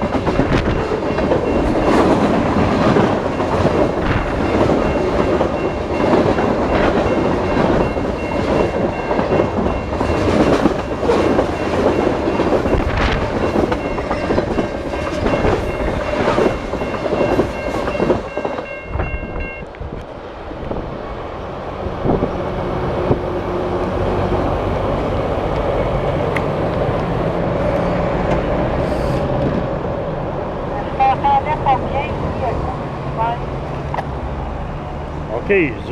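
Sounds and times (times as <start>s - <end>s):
train wheels clacking on rails: 0.0s - 19.7s.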